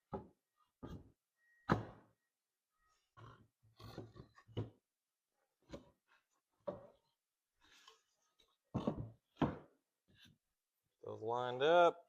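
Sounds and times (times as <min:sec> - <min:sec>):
wooden boards knocking and scraping: 0:08.7 - 0:10.3.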